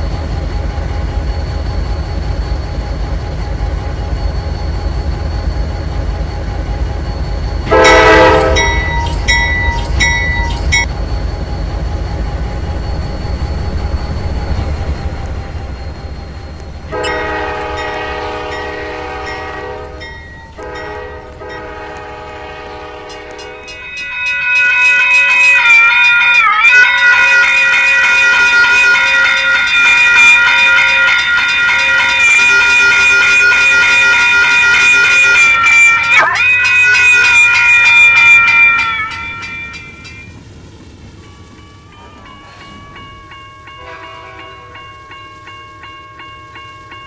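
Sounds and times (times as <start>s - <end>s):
train rumbling: 0.0s - 47.0s
locomotive horn blasts: 7.7s - 8.9s, 16.9s - 23.8s, 25.0s - 39.6s, 43.8s - 44.8s.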